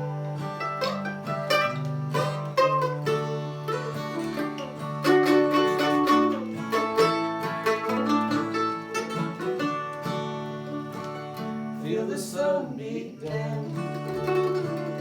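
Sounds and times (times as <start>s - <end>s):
acoustic string band playing: 0.0s - 11.8s.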